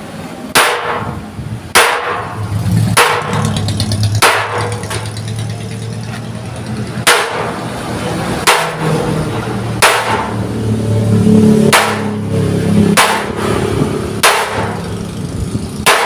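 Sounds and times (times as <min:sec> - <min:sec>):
hammer striking chisel on steel: 0:00.5 - 0:05.4, 0:06.5 - 0:07.6, 0:08.4 - 0:09.0, 0:09.8 - 0:10.4, 0:11.7 - 0:12.2, 0:12.9 - 0:13.4, 0:14.2 - 0:14.9.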